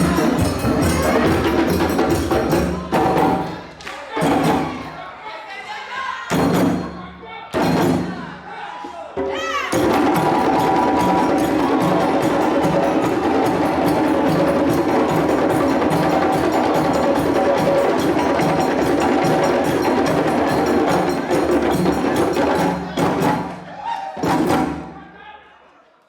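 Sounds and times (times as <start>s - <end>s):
ringing bell-like tones: 0.0s - 2.6s, 9.8s - 22.7s
fast percussion strikes: 0.0s - 5.0s, 6.3s - 8.4s, 9.2s - 25.0s.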